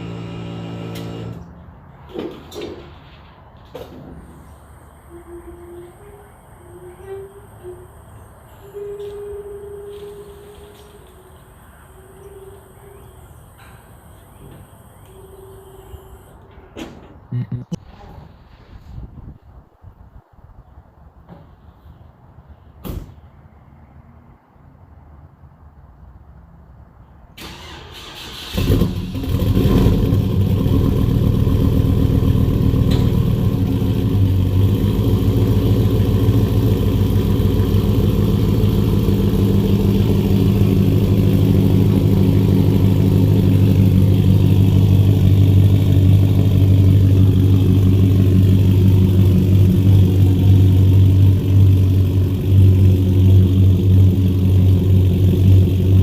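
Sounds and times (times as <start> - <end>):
car engine running: 0.0 - 1.5, 29.2 - 56.0.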